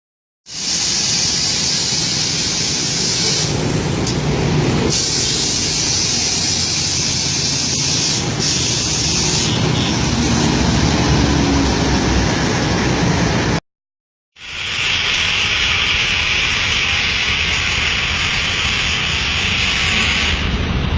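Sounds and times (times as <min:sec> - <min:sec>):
air suspension hissing: 0:00.5 - 0:10.6
bus engine rumbling: 0:00.6 - 0:13.6.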